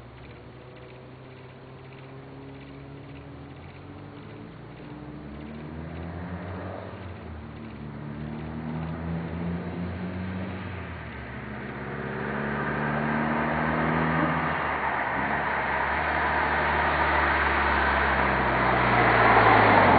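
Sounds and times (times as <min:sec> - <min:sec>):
turbocharged car engine accelerating: 0:00.0 - 0:19.9.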